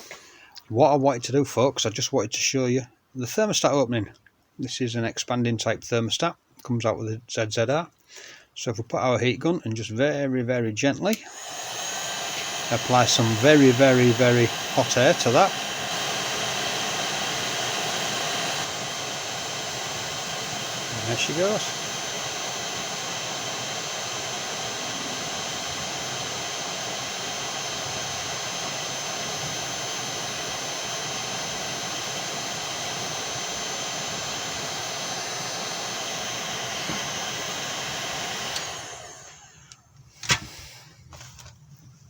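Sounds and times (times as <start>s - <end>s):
heat gun blowing with fan whine: 0.0s - 0.3s, 11.1s - 41.5s.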